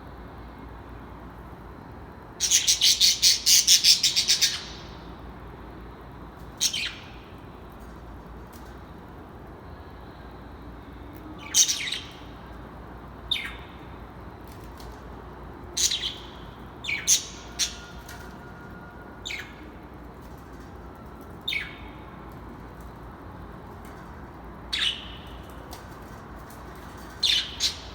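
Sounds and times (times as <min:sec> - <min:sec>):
birds chirping sharply: 0:24.7 - 0:25.6, 0:26.7 - 0:27.9.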